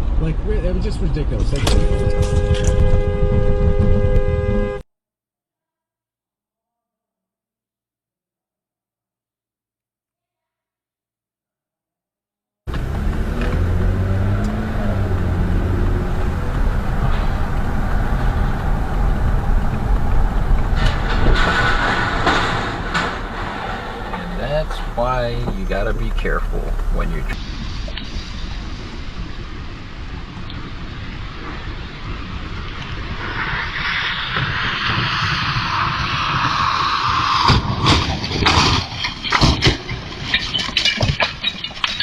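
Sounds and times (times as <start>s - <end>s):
vehicle engine and road noise: 0.0s - 4.8s, 12.7s - 42.0s
rush of noise: 12.7s - 39.0s
loud bangs and knocks: 16.2s - 27.4s.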